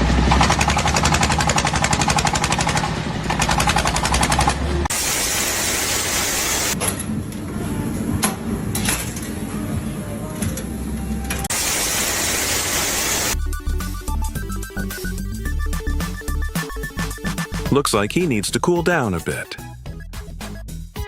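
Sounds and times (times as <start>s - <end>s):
power tool hammering: 0.0s - 6.8s
steady hiss: 11.5s - 13.4s.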